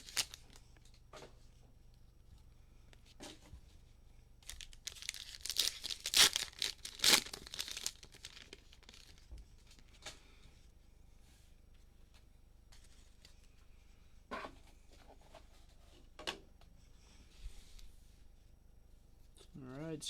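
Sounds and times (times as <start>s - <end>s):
cellophane wrapper crinkling and tearing: 0.0s - 0.9s, 4.4s - 9.8s.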